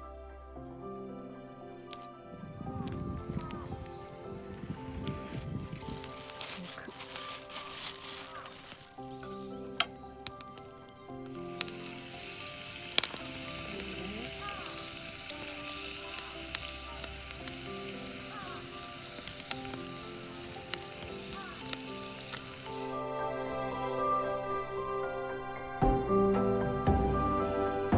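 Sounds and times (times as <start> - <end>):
campfire hissing and sizzling: 0.6 - 24.4
sharp crackling pops: 1.9 - 23.0.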